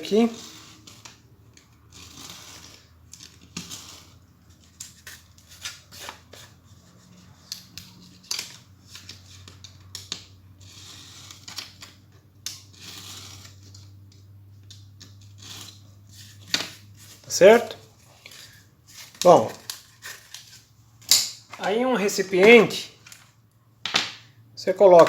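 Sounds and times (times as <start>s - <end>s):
paper rustling: 0.0s - 9.9s, 15.3s - 20.8s.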